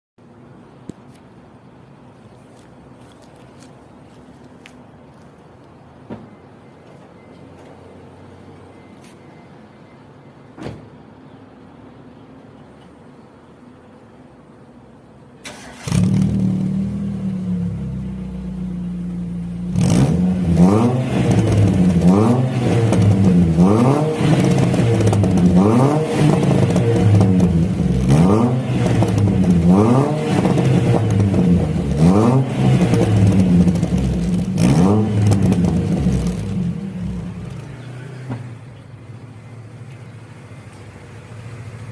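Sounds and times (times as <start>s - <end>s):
car engine starting and idling: 14.8s - 41.9s
engine revving: 15.5s - 18.4s, 19.6s - 38.6s.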